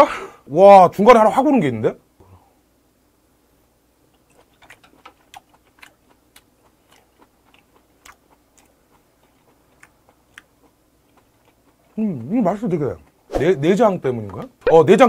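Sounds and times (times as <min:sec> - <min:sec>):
wet mouth clicks while chewing: 0:04.1 - 0:12.3.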